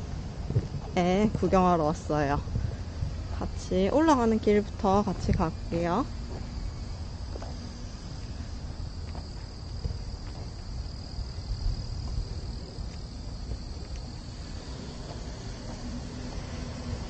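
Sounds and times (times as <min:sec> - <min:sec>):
low rumble: 0:00.0 - 0:09.1
insects chirring: 0:00.0 - 0:17.0.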